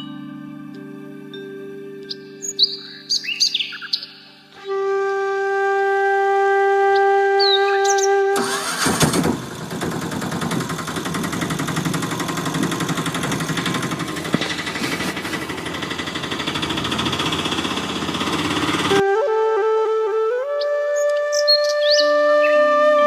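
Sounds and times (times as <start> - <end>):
tractor engine chugging: 8.4 - 19.0.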